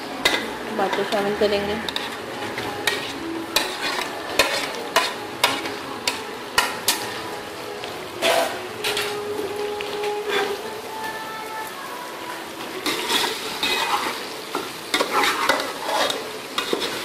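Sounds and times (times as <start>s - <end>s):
food sizzling in a pot: 0.0s - 17.0s
metal spoon scraping a pot: 1.8s - 7.2s, 8.2s - 9.2s, 12.8s - 14.3s, 14.9s - 17.0s.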